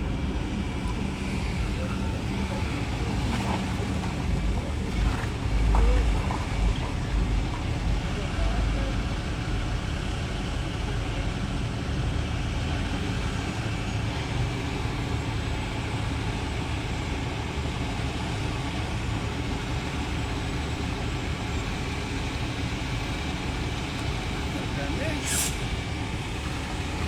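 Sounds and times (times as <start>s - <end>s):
vehicle engines rumbling: 0.0s - 27.0s
traffic hiss: 22.2s - 27.0s.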